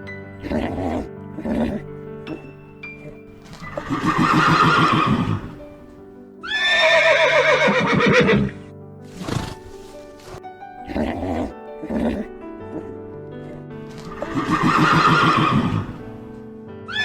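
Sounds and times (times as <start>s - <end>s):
background music: 0.0s - 17.0s
horse neighing: 0.4s - 2.0s, 3.0s - 5.6s, 6.4s - 12.9s, 14.0s - 16.0s.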